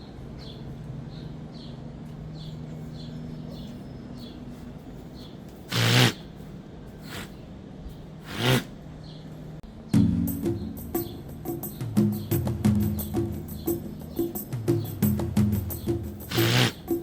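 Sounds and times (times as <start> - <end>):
animal high chirps: 5.7 - 6.3, 7.0 - 7.4, 16.2 - 17.0
harsh animal call: 5.7 - 6.3, 7.0 - 7.4, 8.2 - 8.8, 16.3 - 17.0.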